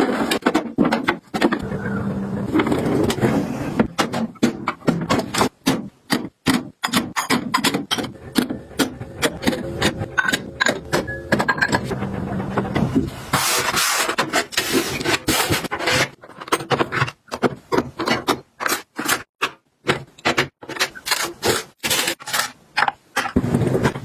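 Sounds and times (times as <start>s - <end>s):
kitchen items clicking and tapping: 3.8s - 12.0s, 14.2s - 24.0s
packaging rustling and scraping: 13.1s - 17.0s, 21.0s - 22.6s.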